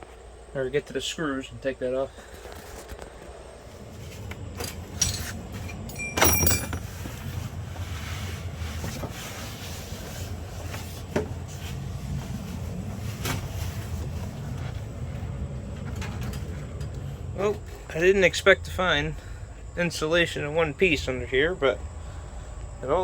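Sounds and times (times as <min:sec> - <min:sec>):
metallic clatter: 0:04.6 - 0:07.2
low rumble: 0:09.7 - 0:22.6.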